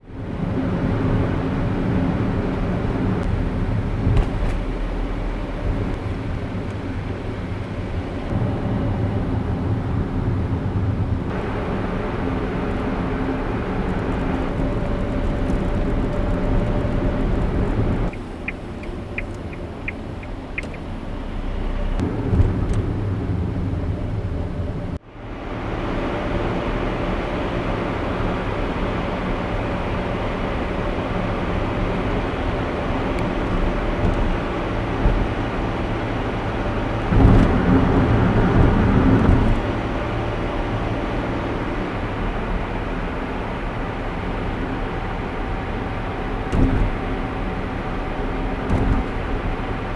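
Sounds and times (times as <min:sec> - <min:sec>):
road traffic noise: 0:00.0 - 0:49.9
tyre and engine rumble: 0:00.0 - 0:49.9
louder low rumble: 0:20.4 - 0:25.0.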